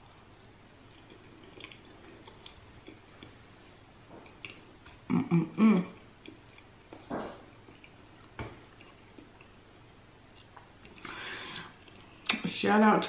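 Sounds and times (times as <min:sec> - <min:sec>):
chewing with wet mouth clicks: 0:00.1 - 0:03.4, 0:04.2 - 0:05.1, 0:06.2 - 0:06.7, 0:07.6 - 0:09.6, 0:10.3 - 0:11.1, 0:11.7 - 0:12.4
person humming mm-mm: 0:05.0 - 0:06.0.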